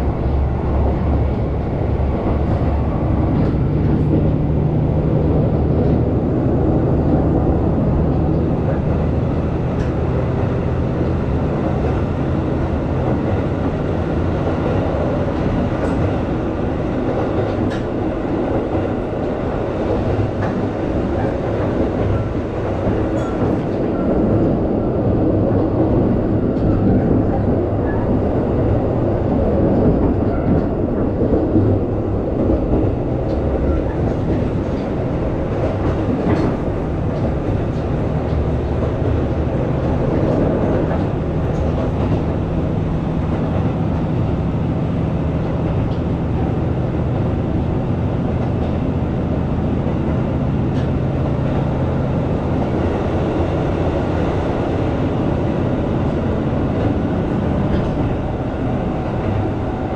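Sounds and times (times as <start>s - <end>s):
diesel railcar engine drone: 0.0s - 59.9s
wheels clicking over rail joints: 19.9s - 24.1s.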